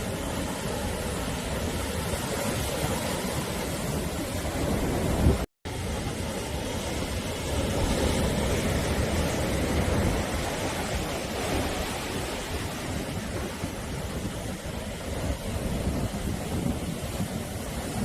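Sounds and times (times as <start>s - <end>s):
sea waves breaking on shore: 0.0s - 18.0s.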